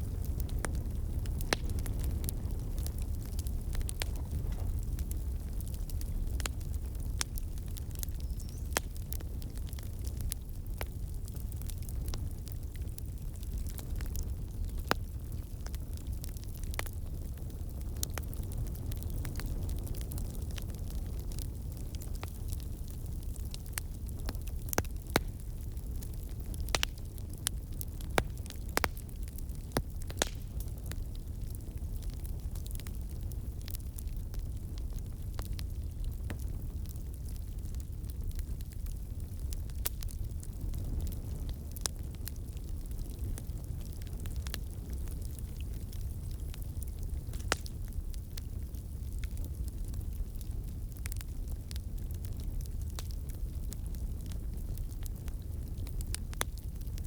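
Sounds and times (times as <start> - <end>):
fire crackling and popping: 0.0 - 57.0
fire rumbling: 0.0 - 57.0.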